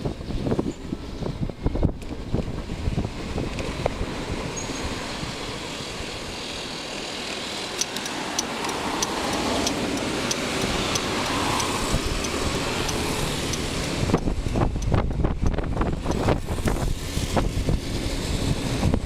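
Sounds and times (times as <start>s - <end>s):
wind noise: 0.0s - 6.8s, 7.5s - 19.0s
tyre noise on road: 0.0s - 19.0s
sharp repeating tick: 7.8s - 16.8s.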